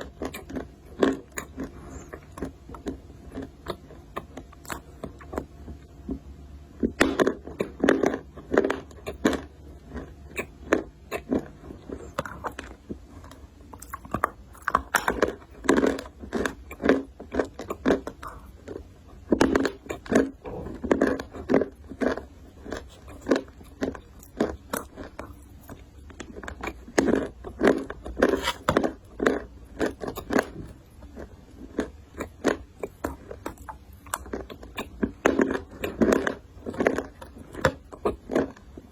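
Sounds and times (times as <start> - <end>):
dry clay crunching when bitten: 0.0 - 6.2, 6.8 - 38.9.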